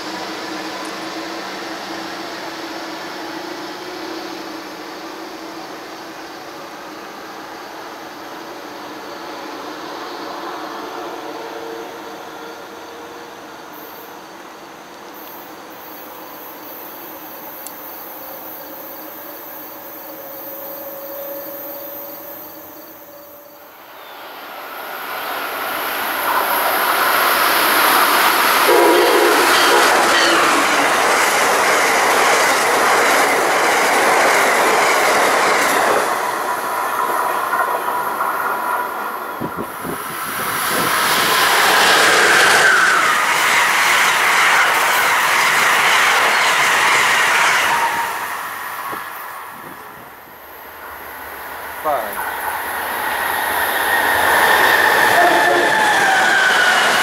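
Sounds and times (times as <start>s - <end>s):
passenger train rushing past: 0.0s - 57.0s.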